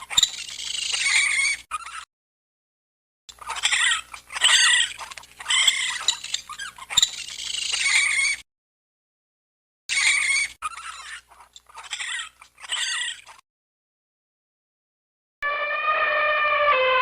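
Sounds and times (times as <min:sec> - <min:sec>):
small animal squeaky calls: 0:00.0 - 0:02.1, 0:03.3 - 0:08.4, 0:09.9 - 0:13.4.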